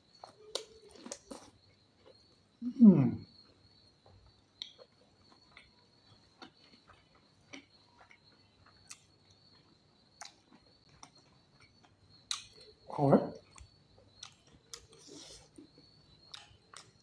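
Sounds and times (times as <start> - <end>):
mouth clicks and chewing smacks: 10.2 - 12.7, 13.4 - 17.0.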